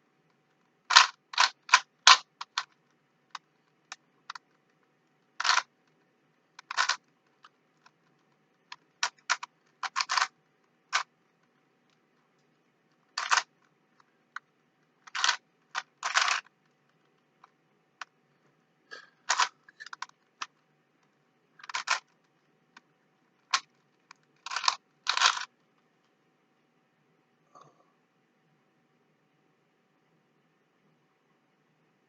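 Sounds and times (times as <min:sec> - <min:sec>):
puzzle cube clicking as twisted: 0:00.9 - 0:12.0, 0:12.9 - 0:17.6, 0:19.2 - 0:20.6, 0:21.6 - 0:22.4, 0:23.4 - 0:25.5.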